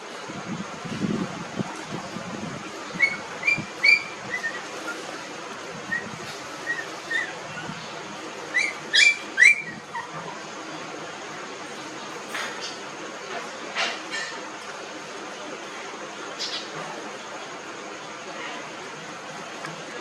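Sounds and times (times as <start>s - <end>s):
puppies squeaking: 2.9s - 10.6s.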